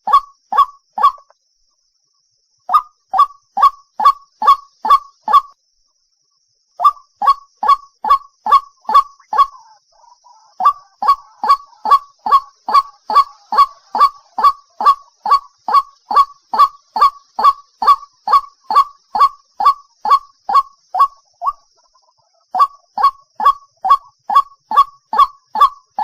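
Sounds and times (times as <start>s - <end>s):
waterhen calling: 6.8s - 21.6s, 22.5s - 26.0s.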